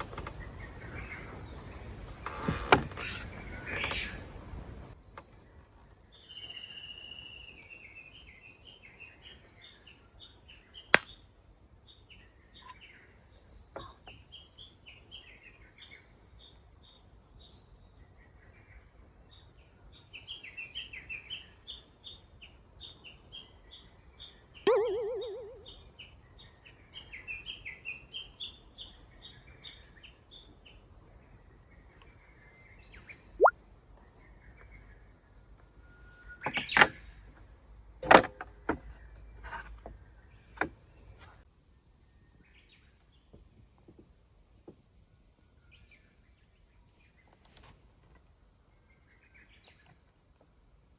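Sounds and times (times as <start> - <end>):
birds chirping and singing: 24.7 - 25.8.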